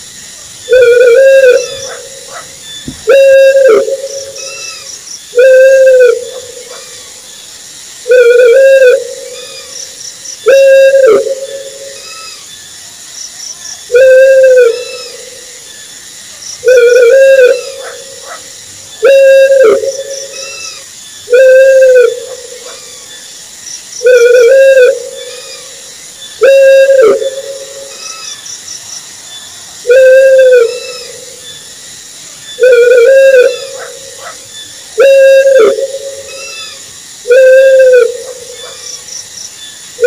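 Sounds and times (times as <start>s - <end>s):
owl hooting: 0.7s - 7.2s, 8.0s - 9.8s, 10.4s - 12.4s, 13.9s - 15.5s, 16.6s - 23.2s, 24.0s - 28.4s, 29.8s - 31.4s, 32.6s - 38.8s.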